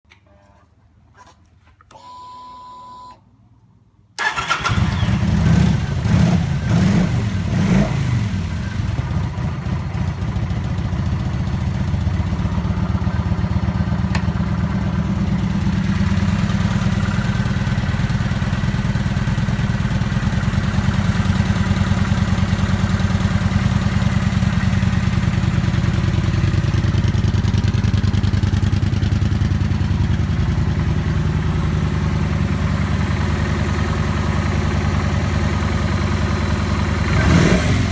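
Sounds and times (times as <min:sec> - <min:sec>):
short steady beep: 0:01.9 - 0:03.2
motorcycle engine revving and idling: 0:04.2 - 0:37.9.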